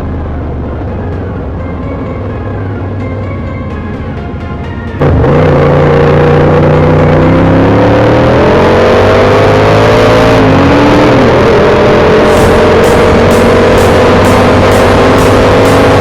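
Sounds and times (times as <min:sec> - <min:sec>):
background music: 0:00.0 - 0:16.0
motorcycle engine accelerating: 0:05.0 - 0:16.0.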